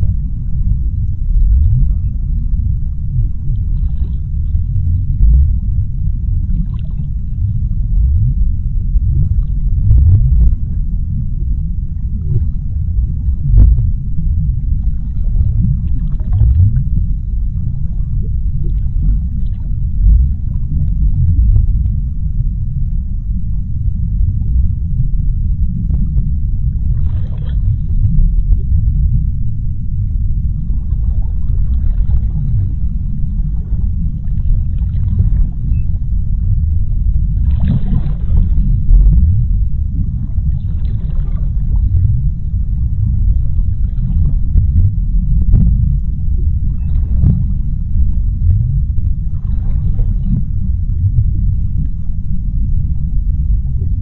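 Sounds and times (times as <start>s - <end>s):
deep underwater rumble: 0.0s - 54.0s.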